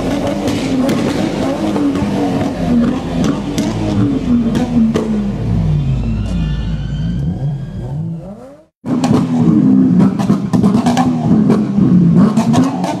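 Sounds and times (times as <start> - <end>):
exhaust pops and bangs: 0.0 - 5.4, 8.8 - 13.0
car engine revving: 0.0 - 13.0.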